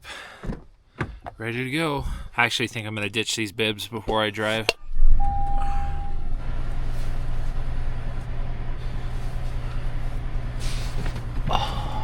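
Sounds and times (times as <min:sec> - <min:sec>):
electronic chime tone: 0:05.2 - 0:06.4.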